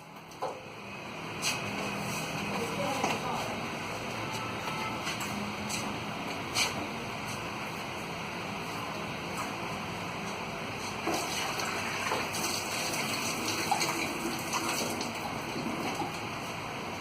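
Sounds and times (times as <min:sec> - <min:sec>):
water pouring and splashing: 0:11.0 - 0:16.2.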